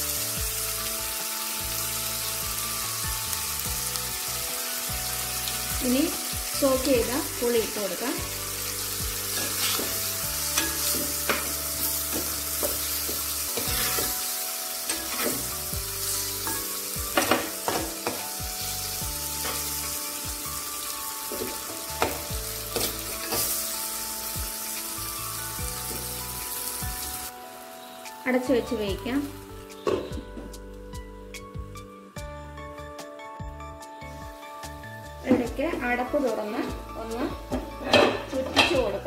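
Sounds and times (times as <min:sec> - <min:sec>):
fish sizzling in oil: 0:00.0 - 0:30.2, 0:34.0 - 0:39.0
steel spoon scraping clay pot: 0:12.6 - 0:14.2.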